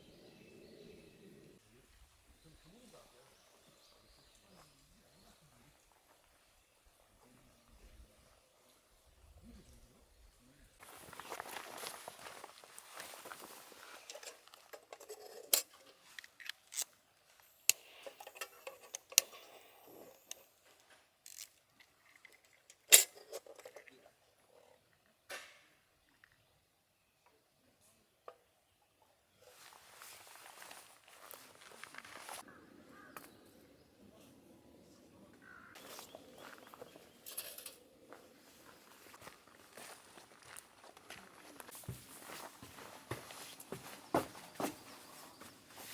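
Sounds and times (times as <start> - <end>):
distant bird calls: 0.0 - 8.2, 29.5 - 40.6, 42.3 - 45.9
soft rustling: 10.8 - 14.7, 29.4 - 32.4.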